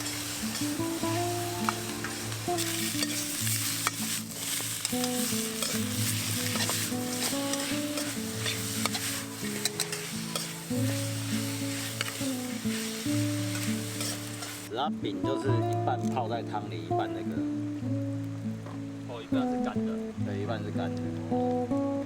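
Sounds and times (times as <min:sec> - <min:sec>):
food sizzling in oil: 0:00.0 - 0:20.2
music with sustained notes: 0:00.0 - 0:22.0.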